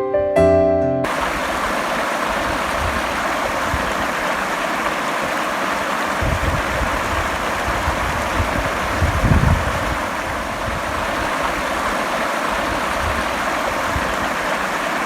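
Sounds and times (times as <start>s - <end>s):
waterfall rushing: 1.1s - 15.0s
low rumbling gusts: 6.2s - 11.7s.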